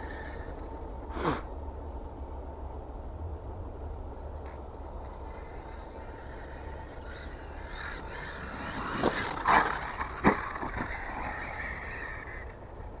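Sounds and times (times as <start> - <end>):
rc truck driving: 0.0 - 13.0.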